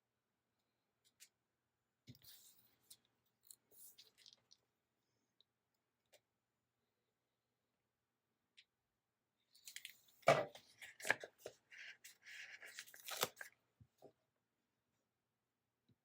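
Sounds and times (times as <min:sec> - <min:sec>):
paper crackling and rustling: 0:09.6 - 0:13.6
sticker peeled from backing: 0:10.8 - 0:13.5.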